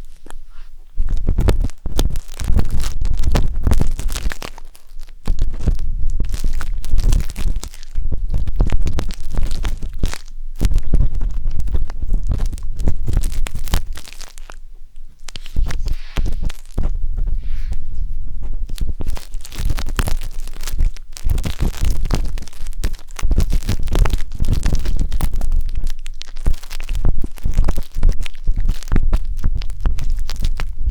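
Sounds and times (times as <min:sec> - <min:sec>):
wooden skewer scratching microphone: 0:15.1 - 0:25.8.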